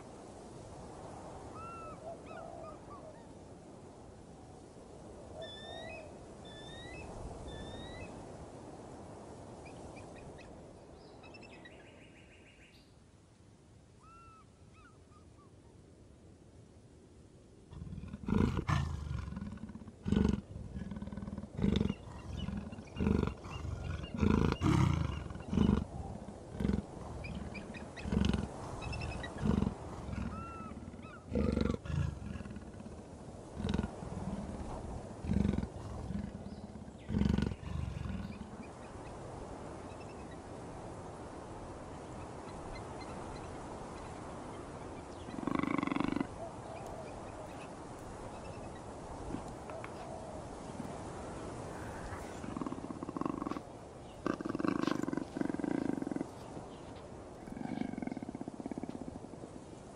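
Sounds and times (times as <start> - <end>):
faint bird chirps: 5.4 - 8.2, 14.0 - 15.8, 41.9 - 51.0.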